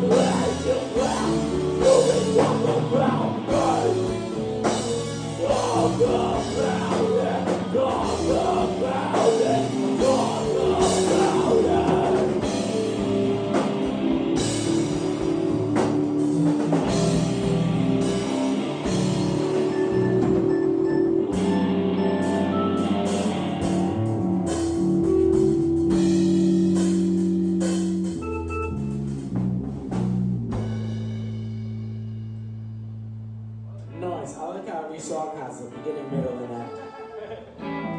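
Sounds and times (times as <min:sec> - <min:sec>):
person singing: 0:00.0 - 0:04.4, 0:05.2 - 0:12.8
live rock band playing: 0:00.0 - 0:32.0, 0:36.8 - 0:37.9
drum kit: 0:00.0 - 0:33.2.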